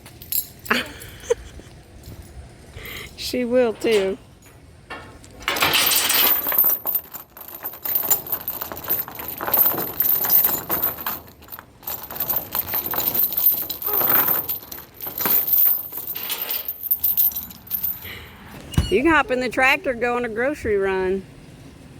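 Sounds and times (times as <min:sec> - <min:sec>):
metal chains rattling and clinking: 0:00.0 - 0:19.3.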